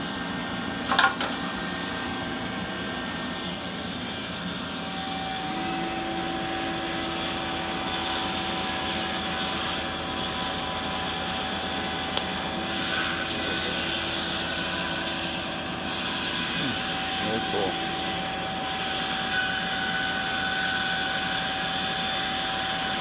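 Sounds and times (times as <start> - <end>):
steady machine whine: 0.0 - 23.0
lathe running: 0.1 - 23.0
part clattering onto conveyor: 0.9 - 1.5.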